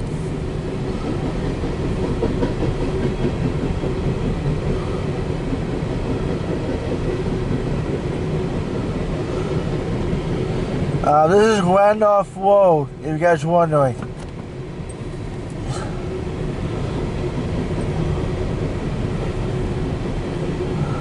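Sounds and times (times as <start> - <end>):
train wheels rumbling and clattering: 0.0 - 21.0.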